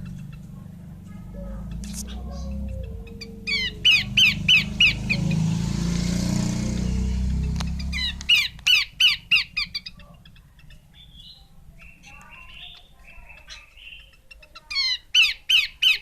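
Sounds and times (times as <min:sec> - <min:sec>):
low rumble: 0:00.0 - 0:08.3
bird calling in whistled notes: 0:01.4 - 0:05.5.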